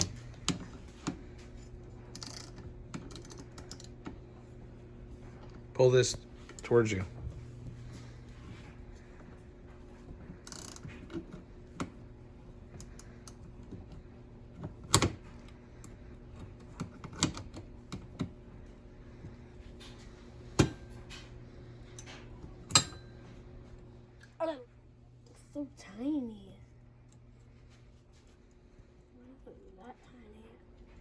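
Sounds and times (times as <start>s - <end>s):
steady low hum: 0.0s - 31.0s
hands clicking and tapping parts: 15.8s - 18.4s.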